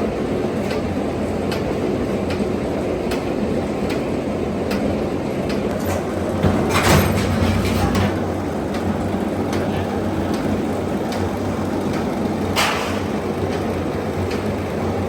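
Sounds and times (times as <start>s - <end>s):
machinery humming: 0.0s - 15.0s
sheet metal clatter: 5.7s - 8.9s, 12.6s - 13.2s.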